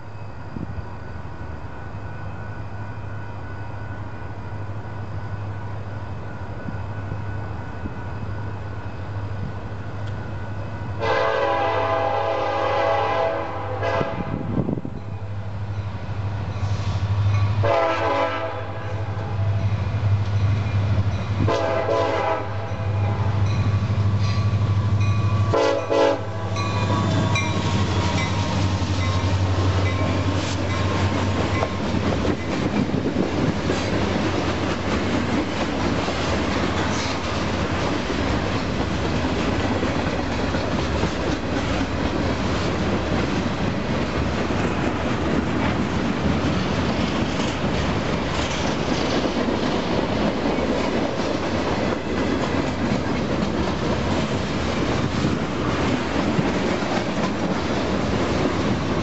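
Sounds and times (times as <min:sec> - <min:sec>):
diesel locomotives rumbling: 0:00.0 - 0:59.0
wheel and rail noise: 0:00.0 - 0:59.0
multi-tone air horn blasts: 0:11.0 - 0:14.5, 0:17.6 - 0:19.2, 0:21.5 - 0:23.3, 0:25.5 - 0:26.5.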